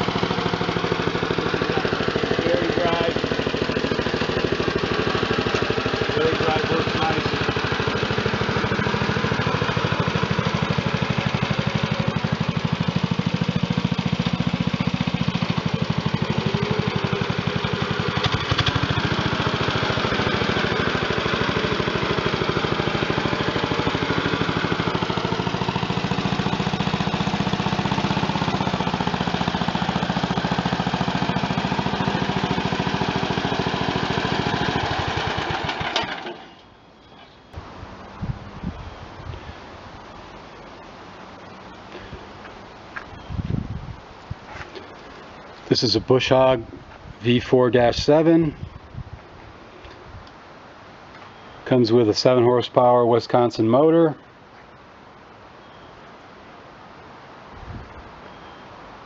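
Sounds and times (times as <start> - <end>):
tractor engine running: 0.0 - 48.8.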